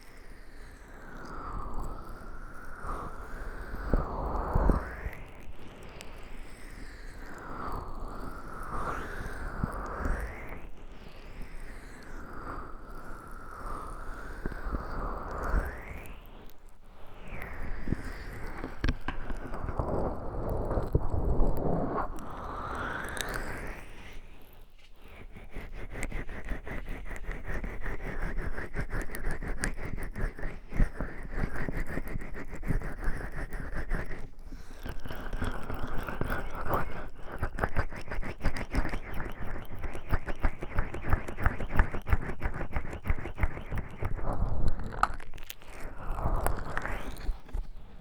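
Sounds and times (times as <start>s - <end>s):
oiled hands rubbing microphone: 24.0s - 48.0s.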